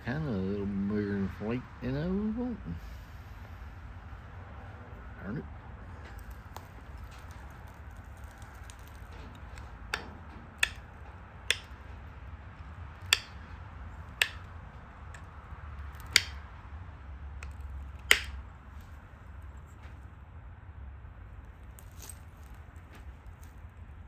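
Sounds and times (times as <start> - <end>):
stone flaking clicks: 6.0 - 12.0, 13.0 - 16.5, 17.4 - 19.0.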